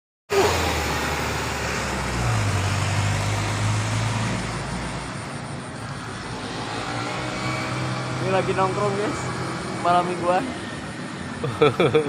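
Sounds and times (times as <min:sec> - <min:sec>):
street traffic: 0:00.3 - 0:12.0
vehicle engine idling: 0:00.3 - 0:12.0.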